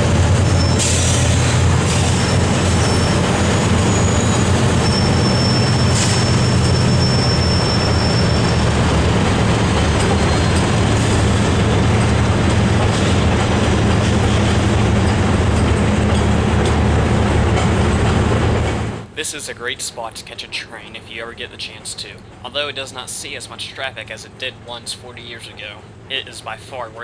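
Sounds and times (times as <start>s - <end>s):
diesel locomotive engine drone: 0.0s - 27.0s
train rumble: 0.0s - 27.0s.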